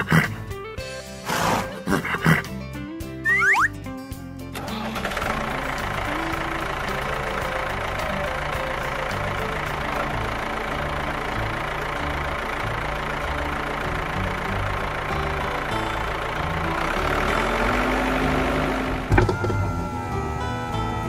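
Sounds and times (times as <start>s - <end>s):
tractor engine idling: 3.3s - 21.0s.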